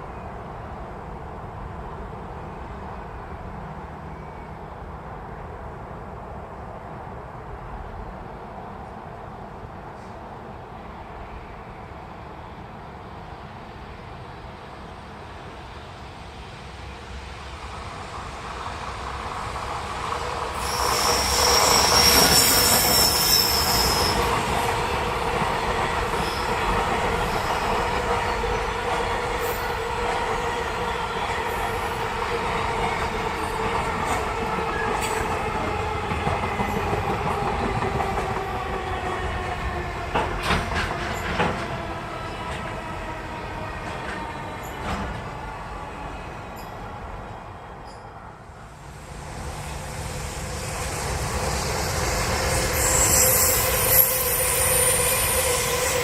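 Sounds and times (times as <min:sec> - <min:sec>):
train passing with rumble: 0:00.0 - 0:56.0
high wheel squeal: 0:20.3 - 0:25.0, 0:49.0 - 0:56.0.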